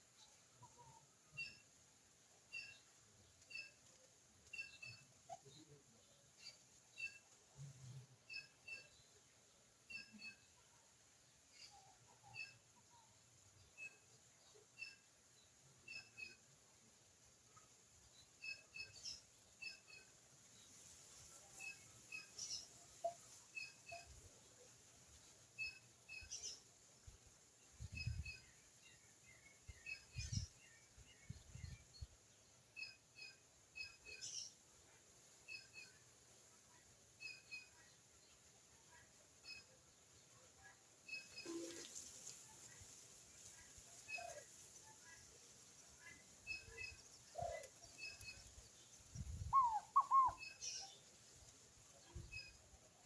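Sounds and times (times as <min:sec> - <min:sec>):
small birds chirping: 0:00.1 - 0:53.0
loud arched whistled bird notes: 0:49.5 - 0:50.6.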